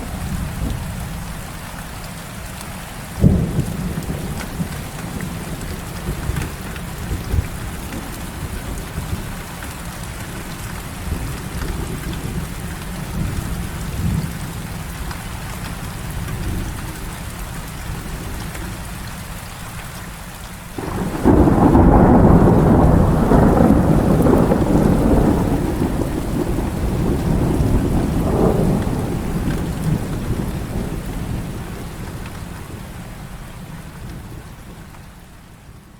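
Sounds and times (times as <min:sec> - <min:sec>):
heavy rain falling: 0:00.0 - 0:35.9
low thunder rumbling: 0:03.2 - 0:09.6, 0:20.8 - 0:34.9
loud thunderclap: 0:20.8 - 0:32.4.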